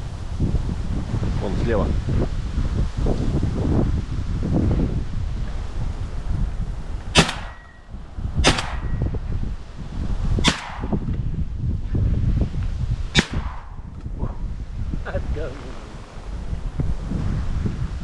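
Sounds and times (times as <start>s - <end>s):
wind noise on microphone: 0.0s - 18.0s
shotgun shots: 7.1s - 7.8s, 8.4s - 9.1s, 10.4s - 11.0s, 13.1s - 13.9s.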